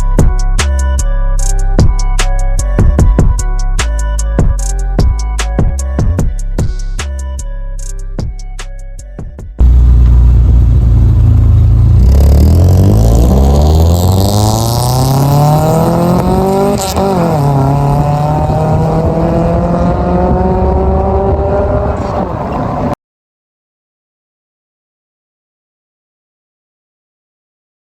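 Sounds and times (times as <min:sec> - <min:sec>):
car engine accelerating: 0:09.6 - 0:23.0.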